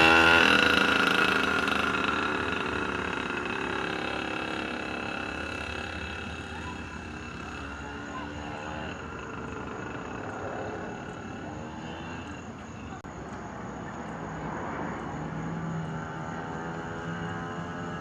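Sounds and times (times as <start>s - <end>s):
pocket bike engine running: 0.0s - 12.4s.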